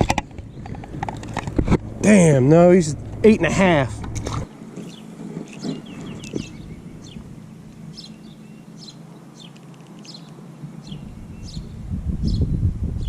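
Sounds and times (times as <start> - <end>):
songbird chirping: 4.4 - 12.6.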